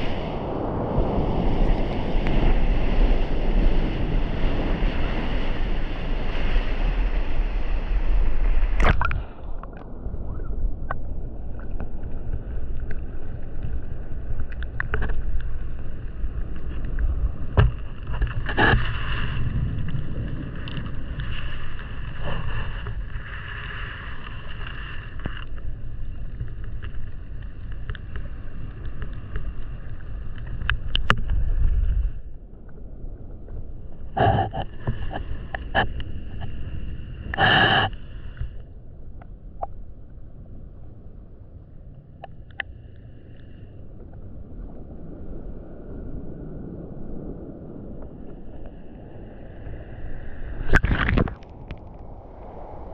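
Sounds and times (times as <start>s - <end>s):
low underwater rumble: 0.0s - 52.9s
clicks and crackles: 8.6s - 32.8s, 33.4s - 36.6s, 42.2s - 43.4s, 50.6s - 52.1s.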